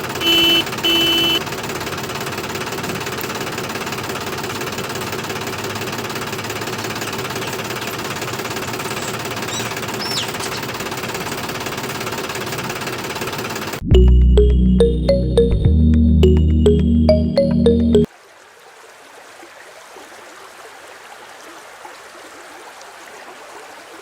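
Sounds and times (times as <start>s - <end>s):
small motor buzzing: 5.7s - 11.7s.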